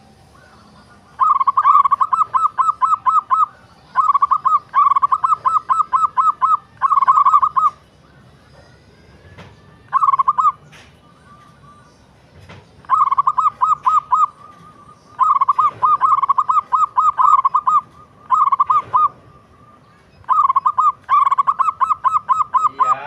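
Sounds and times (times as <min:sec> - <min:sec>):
dove cooing: 0:01.1 - 0:07.8, 0:09.8 - 0:10.9, 0:12.8 - 0:23.0.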